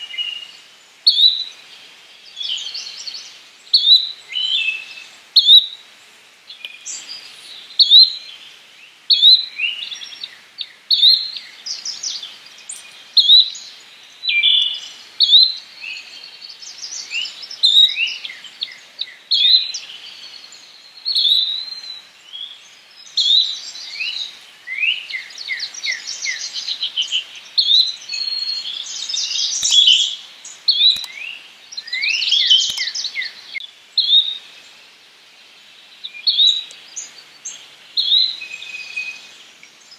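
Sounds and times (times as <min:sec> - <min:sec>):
bird chirps: 0:09.1 - 0:34.8, 0:36.0 - 0:39.9.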